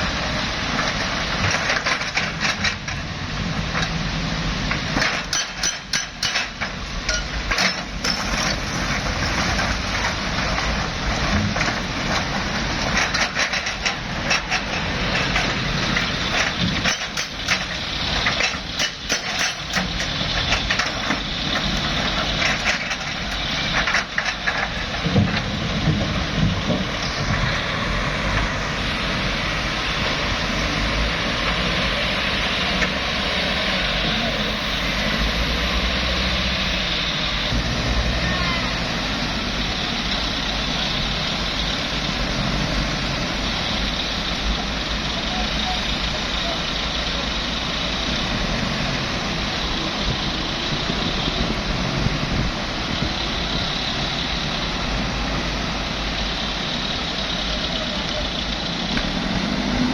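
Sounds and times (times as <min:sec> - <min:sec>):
heavy machinery diesel engine: 0:00.0 - 0:59.9
knocks and clattering: 0:00.3 - 0:27.5.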